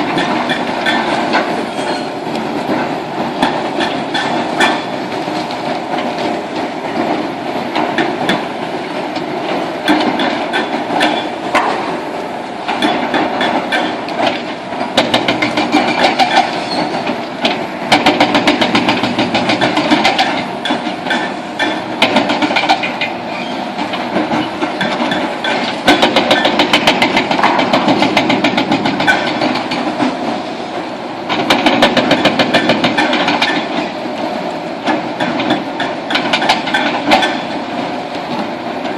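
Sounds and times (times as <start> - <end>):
excavator breaking concrete: 17.9 - 23.0, 24.3 - 29.8.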